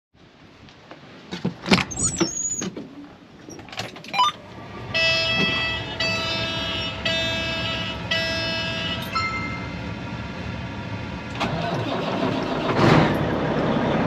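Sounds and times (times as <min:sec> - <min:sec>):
short squeaks: 0:01.8 - 0:02.8
background music with held chords: 0:09.1 - 0:09.9.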